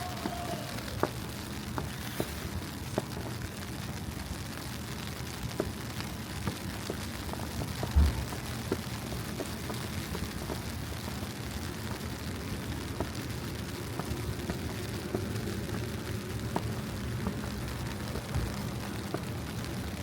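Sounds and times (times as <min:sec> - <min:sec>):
low city rumble: 0:00.0 - 0:20.0
footsteps on snow: 0:01.7 - 0:03.1
brief low thump: 0:08.0 - 0:08.3.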